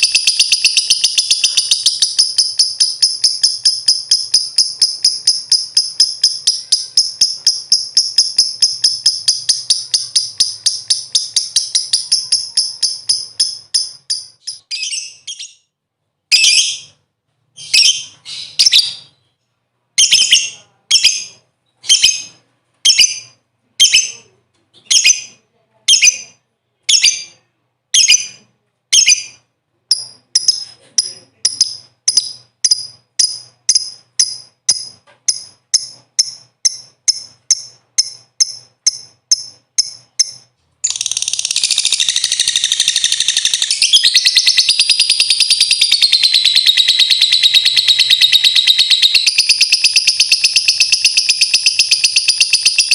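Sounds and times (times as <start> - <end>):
lovebird chattering trill: 0.0 - 15.6, 28.0 - 52.9.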